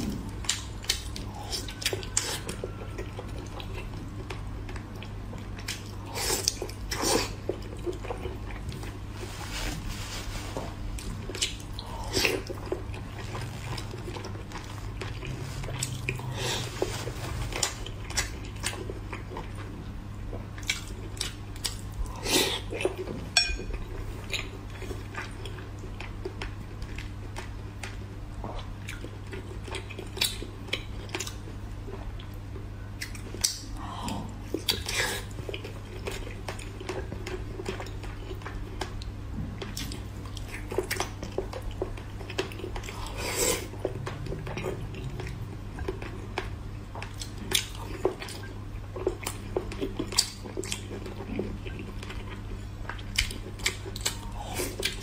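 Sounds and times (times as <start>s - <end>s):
person chewing pork: 0.0s - 9.5s, 10.7s - 55.0s
steady low hum: 0.0s - 55.0s.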